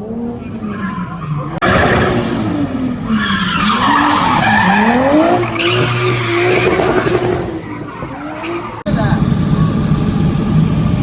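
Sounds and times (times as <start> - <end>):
car engine revving: 0.0 - 11.0
tyres squealing: 3.1 - 8.9.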